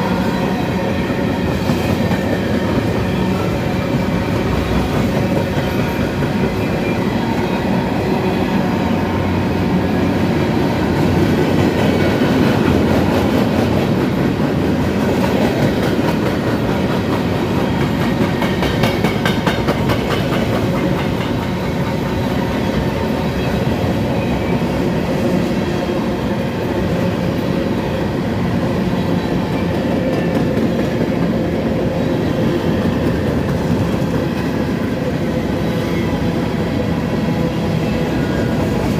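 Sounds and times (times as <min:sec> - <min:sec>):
train wheels clattering over rails: 0:00.7 - 0:07.8, 0:10.1 - 0:25.6, 0:28.4 - 0:35.4.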